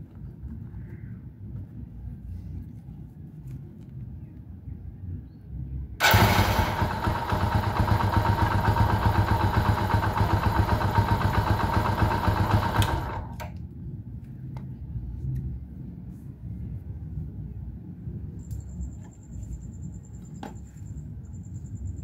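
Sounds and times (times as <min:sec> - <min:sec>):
motorcycle engine running: 0:06.0 - 0:13.4.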